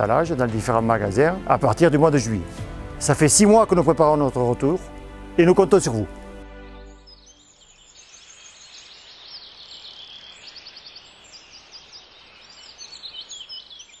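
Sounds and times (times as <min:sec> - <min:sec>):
songbirds chirping and trilling: 0:06.8 - 0:14.0.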